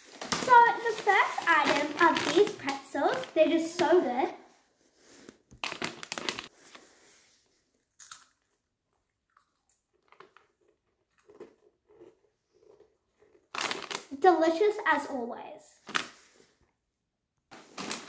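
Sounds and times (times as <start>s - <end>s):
pretzel crunching: 0.0s - 3.8s, 5.5s - 6.5s, 9.9s - 14.1s.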